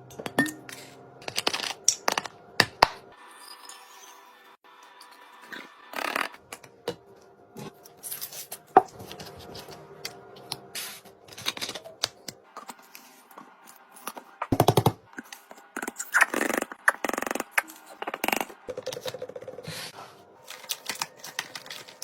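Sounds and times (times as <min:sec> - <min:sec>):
packages handled in a fridge: 0:20.0 - 0:22.0
packaging crinkling: 0:20.4 - 0:22.0.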